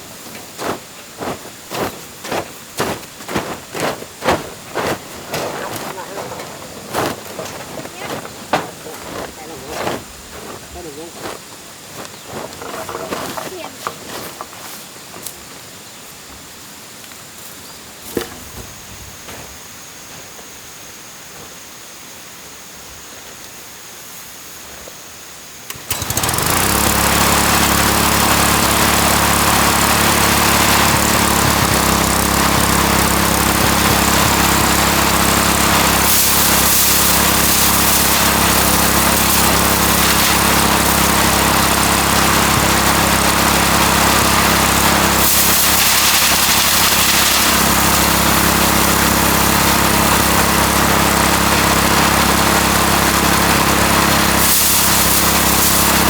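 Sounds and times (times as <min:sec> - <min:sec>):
threshing machine hum: 0:00.0 - 0:14.4, 0:25.7 - 0:56.0
high rushing hiss: 0:00.0 - 0:56.0.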